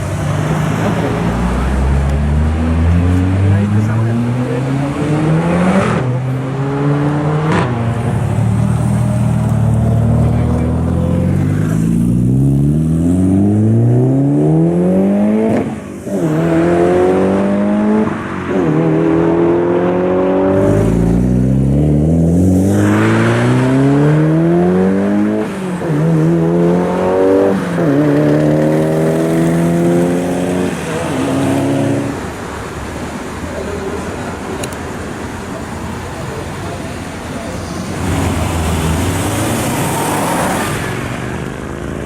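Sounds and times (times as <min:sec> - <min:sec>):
car engine accelerating through gears: 0:00.2 - 0:32.2.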